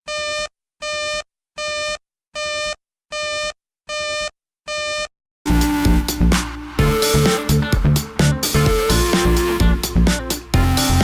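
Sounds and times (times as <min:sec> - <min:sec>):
electronic music: 0:05.5 - 0:11.0.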